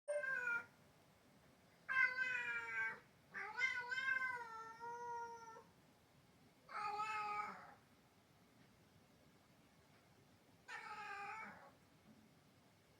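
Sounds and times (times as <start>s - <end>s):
cat meowing loudly: 0.1s - 0.7s, 1.9s - 5.6s, 6.7s - 7.8s.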